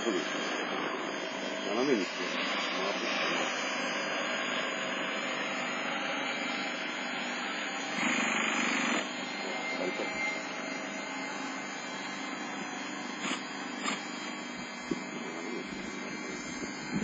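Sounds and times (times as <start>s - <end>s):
electric starter whirring: 4.0s - 17.0s.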